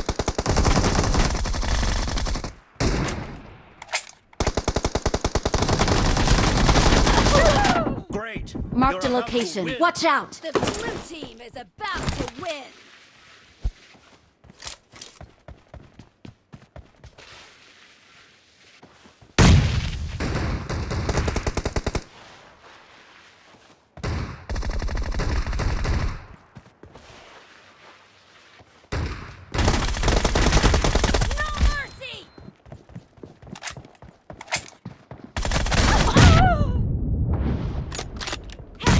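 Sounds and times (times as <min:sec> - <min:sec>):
video game automatic gunfire: 0:00.0 - 0:02.5, 0:04.4 - 0:07.4, 0:29.0 - 0:31.6, 0:35.4 - 0:36.2.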